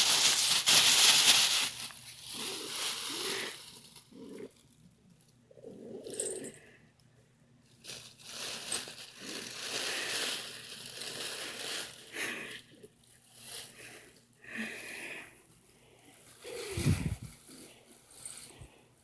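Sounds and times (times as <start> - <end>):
bag rustling and crinkling: 0.0 - 4.8, 7.8 - 14.1, 16.0 - 18.7.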